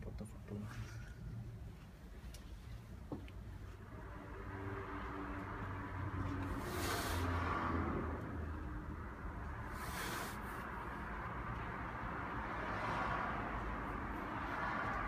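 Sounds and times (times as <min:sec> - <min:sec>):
short hissing rushes: 0:06.6 - 0:07.4, 0:09.7 - 0:10.6.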